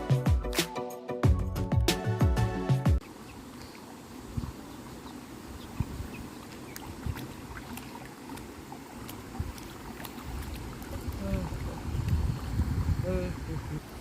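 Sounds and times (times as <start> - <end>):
creek water lapping and splashing: 3.0 - 14.0
wind rumbling on microphone: 4.2 - 4.8, 5.4 - 8.0, 8.6 - 14.0.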